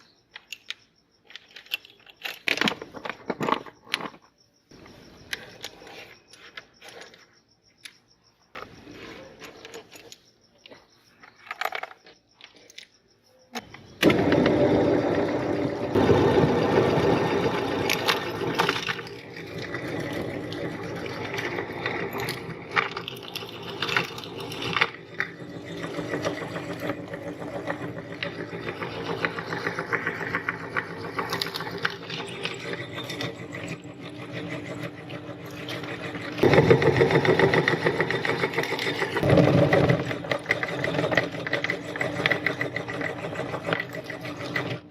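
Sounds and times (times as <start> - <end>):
meat grinder motor humming: 14.0 - 44.9.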